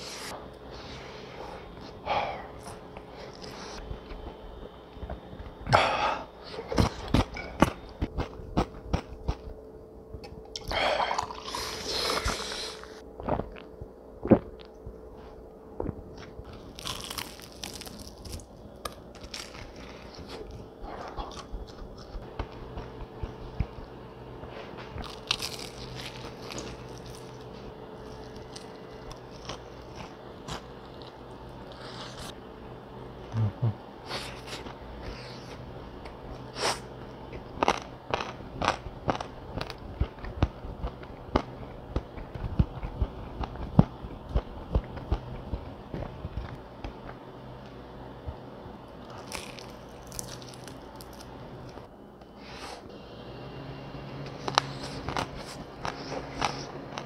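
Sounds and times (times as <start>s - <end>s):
crunching fried chicken: 16.5s - 22.3s, 25.0s - 32.3s, 36.7s - 44.0s, 49.0s - 51.9s.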